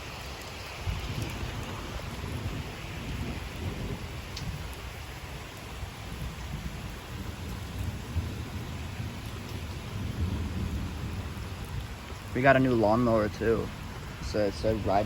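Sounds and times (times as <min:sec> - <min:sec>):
rain falling: 0:00.0 - 0:15.0
low uneven rumbling: 0:08.0 - 0:15.0.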